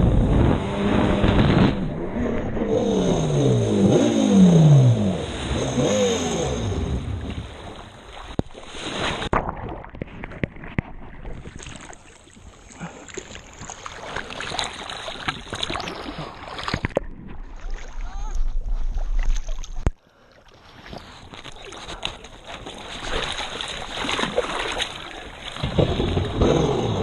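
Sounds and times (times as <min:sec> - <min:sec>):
jet ski engine: 0:00.0 - 0:08.2, 0:22.0 - 0:27.0
water splashing and lapping: 0:00.6 - 0:27.0.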